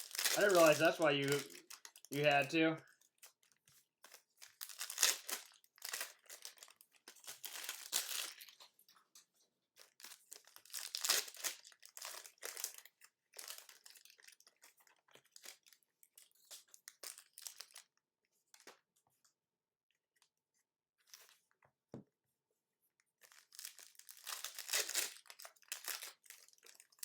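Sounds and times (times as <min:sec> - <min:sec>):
card pack wrappers crinkling and tearing: 0:00.0 - 0:09.2, 0:09.8 - 0:17.9, 0:23.2 - 0:27.0.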